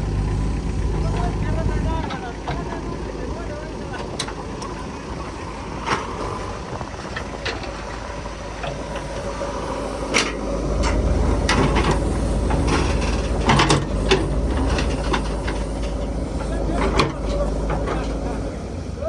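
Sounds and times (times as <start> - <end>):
vehicle engine running: 0.0 - 19.0
metallic clanks and knocks: 10.2 - 18.5.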